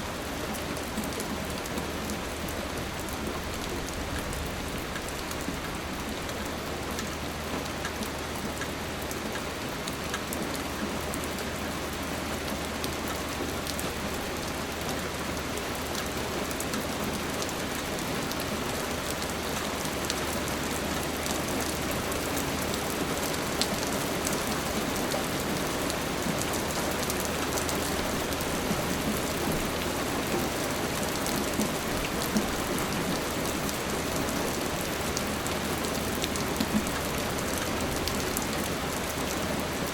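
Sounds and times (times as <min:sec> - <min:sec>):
rain falling: 0:00.0 - 0:39.9
raindrop ticks: 0:03.5 - 0:10.9.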